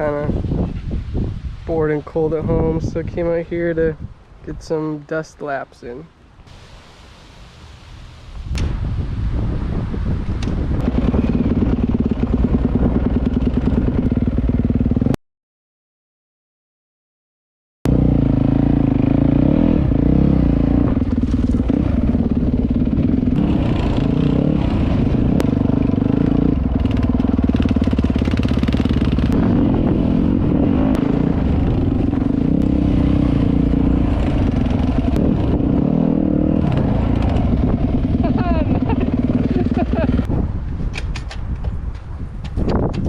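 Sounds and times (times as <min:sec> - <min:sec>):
dirt bike engine revving: 0:10.8 - 0:15.2, 0:17.9 - 0:40.3.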